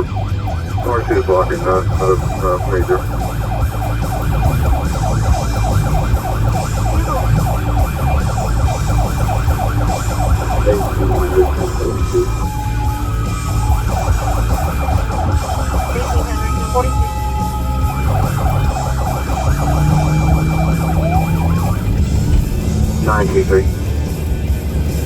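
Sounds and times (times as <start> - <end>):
police siren yelping: 0.0 - 24.7
engine and road rumble: 0.0 - 25.0.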